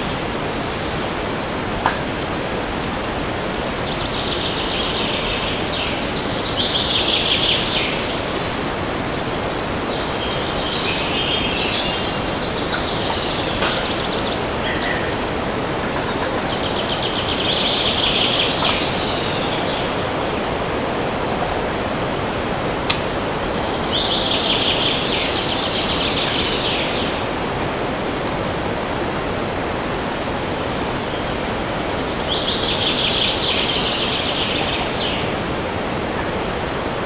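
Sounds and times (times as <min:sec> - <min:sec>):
wind rushing in trees: 0:00.0 - 0:37.0
songbird trilling: 0:03.6 - 0:20.6.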